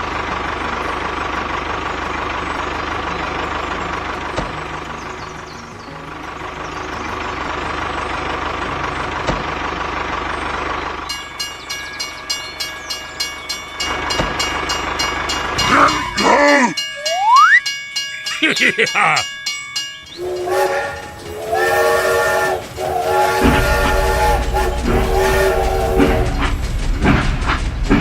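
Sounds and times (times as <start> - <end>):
rhythmic clacking: 0.0 - 28.0
steady tones: 11.0 - 28.0
rising whistle: 15.0 - 17.7, 20.0 - 27.2
short pitched call: 15.7 - 17.6.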